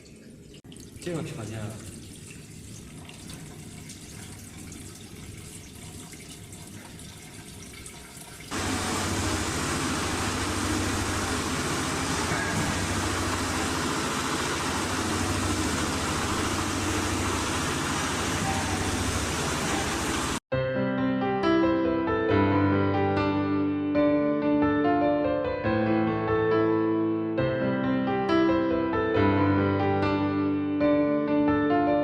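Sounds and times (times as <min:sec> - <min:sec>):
diesel engine running: 0:08.5 - 0:20.4.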